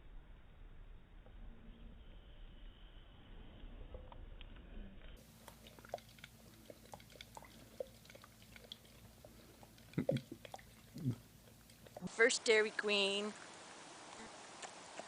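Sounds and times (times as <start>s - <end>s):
pet chewing and smacking: 4.0s - 12.1s.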